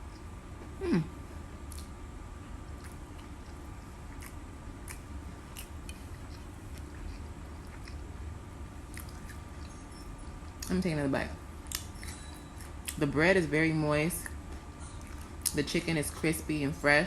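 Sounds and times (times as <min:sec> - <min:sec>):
low steady hum: 0:00.0 - 0:17.0
person chewing crispy food: 0:01.5 - 0:10.7.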